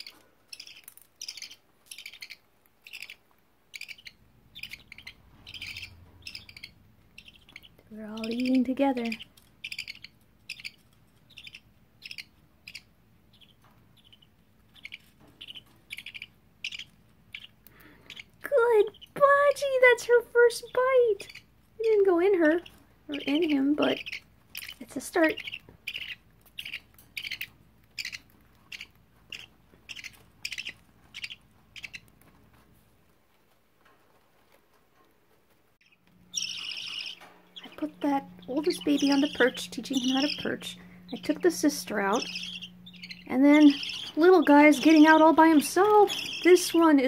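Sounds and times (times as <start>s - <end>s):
budgerigars chirping: 0.0s - 32.2s, 35.8s - 47.0s.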